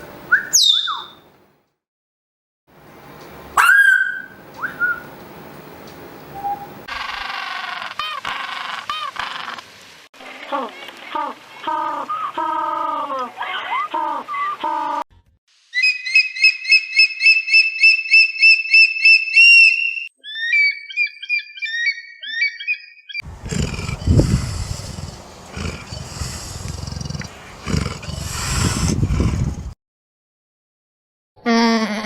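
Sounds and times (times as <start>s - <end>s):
bird whistling and chirping: 0.3s - 1.2s, 3.6s - 5.1s, 6.3s - 6.8s, 15.8s - 23.2s
tiger roaring and growling: 23.2s - 29.8s.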